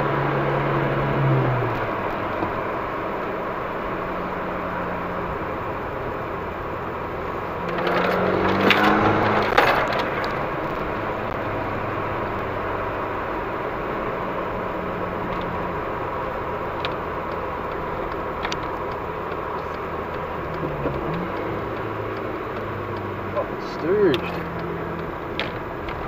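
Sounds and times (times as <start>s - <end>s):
car engine accelerating: 0.0s - 26.0s
road noise: 0.0s - 26.0s
sharp cracks: 7.6s - 11.5s.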